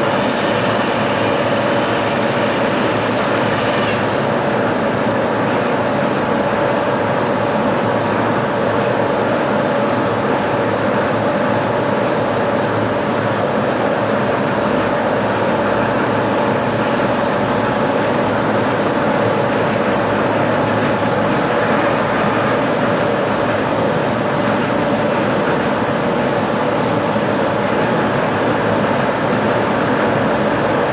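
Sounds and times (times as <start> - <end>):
machine tool humming and hissing: 0.0 - 5.8.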